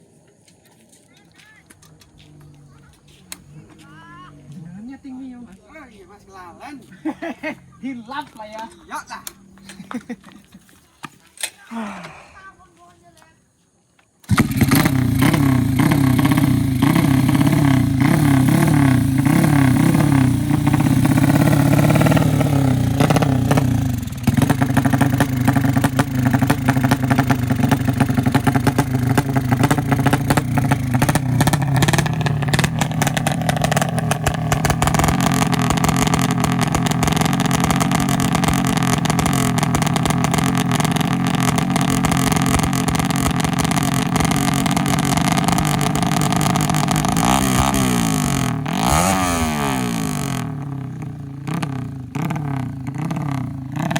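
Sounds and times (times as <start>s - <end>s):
motorcycle engine revving: 14.2s - 53.9s.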